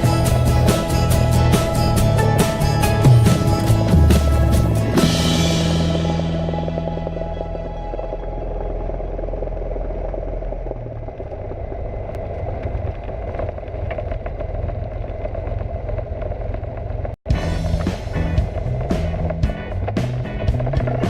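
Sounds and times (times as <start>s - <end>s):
propeller plane engine running: 0.0s - 21.0s.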